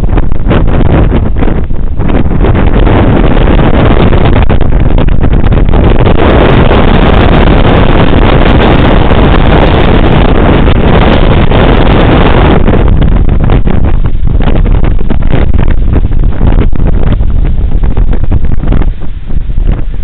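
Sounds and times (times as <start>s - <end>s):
wind blasting microphone: 0.0s - 20.0s.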